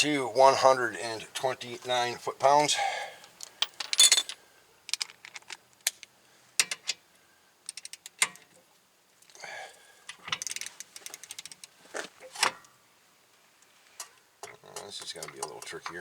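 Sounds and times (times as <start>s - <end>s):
hand tools clinking: 3.4s - 5.1s.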